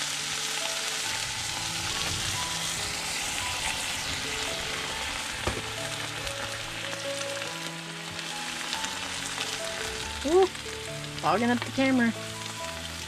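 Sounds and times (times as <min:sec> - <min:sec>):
food sizzling in a skillet: 0:00.0 - 0:13.0
light background music: 0:00.0 - 0:13.0
sharp knock: 0:05.4 - 0:05.7.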